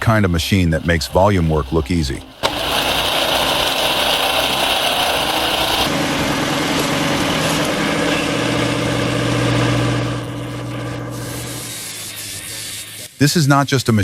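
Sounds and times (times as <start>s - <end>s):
wood splitter engine humming: 0.0s - 13.0s
hiss: 11.1s - 13.2s.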